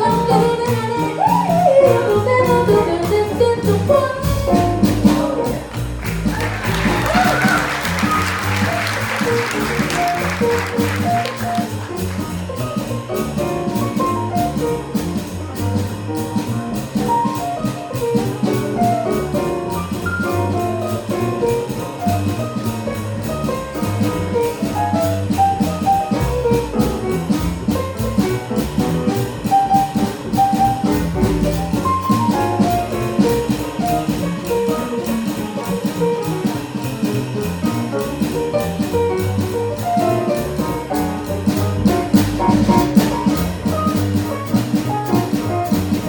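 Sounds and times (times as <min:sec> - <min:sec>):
drum kit cymbal beat: 0:00.0 - 0:46.0
walking bass: 0:00.0 - 0:46.0
soloist playing quick notes: 0:04.7 - 0:14.2.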